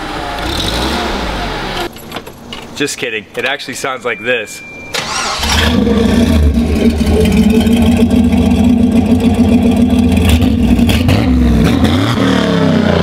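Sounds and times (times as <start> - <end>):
engine idling and revving: 0.0 - 1.9, 5.0 - 13.0.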